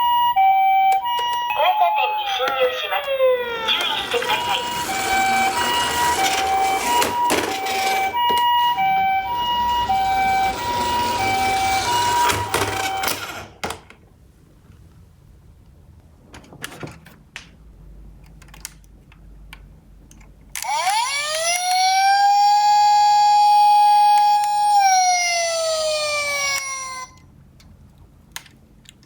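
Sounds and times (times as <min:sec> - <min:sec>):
toy electronic two-tone siren: 0:00.0 - 0:13.6, 0:20.6 - 0:27.2
plastic toy cars rattling: 0:03.6 - 0:13.9.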